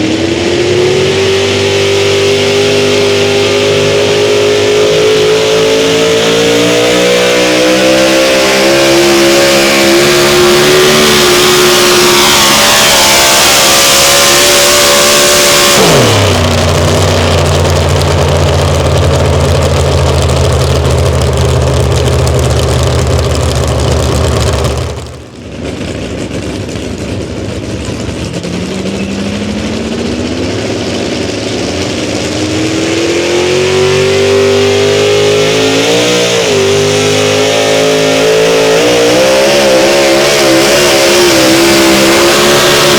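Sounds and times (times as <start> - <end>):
engine revving up: 0.0 - 25.4, 31.6 - 42.9
engine running at high revs: 0.0 - 42.9
engine idling: 15.6 - 25.5.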